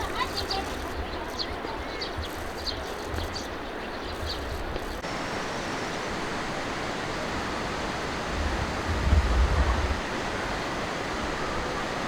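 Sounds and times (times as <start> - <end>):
rushing water: 4.6 - 12.0
wind rumble on microphone: 7.0 - 12.0.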